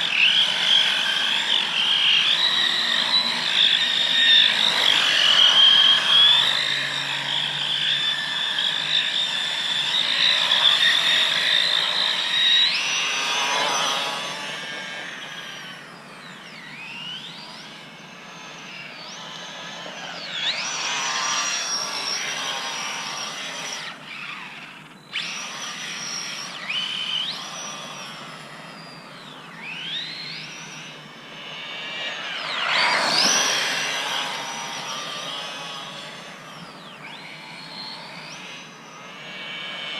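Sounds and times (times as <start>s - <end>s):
small electric motor whining: 0.0s - 39.9s.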